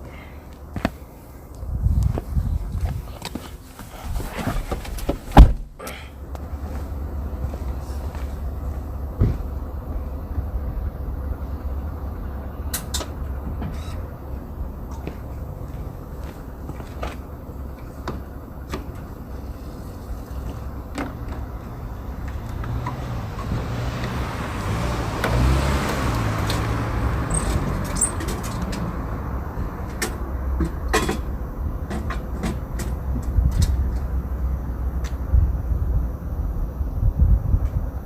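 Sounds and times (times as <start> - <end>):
road and tyre rumble: 0.0 - 38.0.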